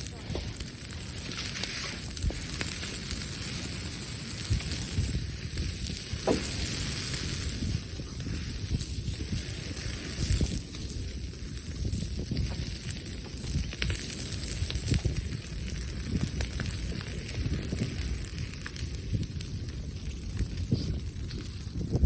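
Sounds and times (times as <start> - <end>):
campfire crackling and hissing: 0.0 - 22.0
small pops of fire: 0.0 - 22.0.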